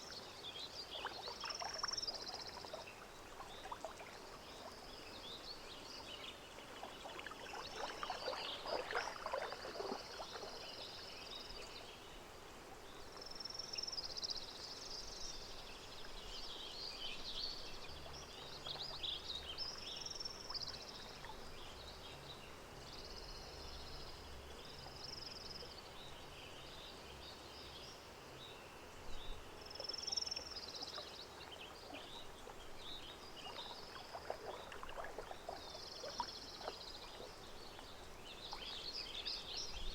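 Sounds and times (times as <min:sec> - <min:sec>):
water gently lapping: 0:00.0 - 0:26.1, 0:29.1 - 0:39.9
water splashing: 0:06.0 - 0:11.4, 0:29.8 - 0:39.8.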